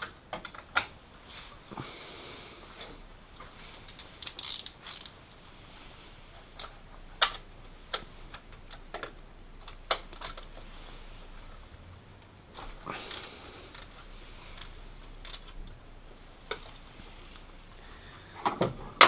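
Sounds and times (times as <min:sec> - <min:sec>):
socket wrench clicking on nut: 0:03.7 - 0:05.1.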